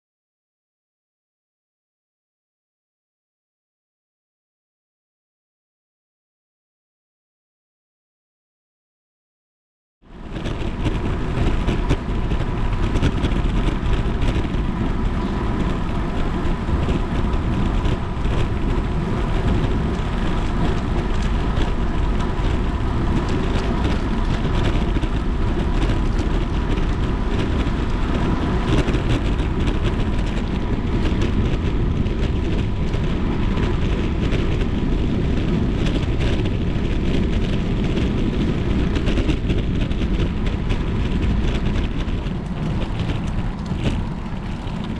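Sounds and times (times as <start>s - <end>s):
wind noise on microphone: 10.0s - 44.9s
bicycle tyres hissing on wet road: 10.1s - 35.7s, 40.6s - 44.9s
rain: 10.1s - 44.9s.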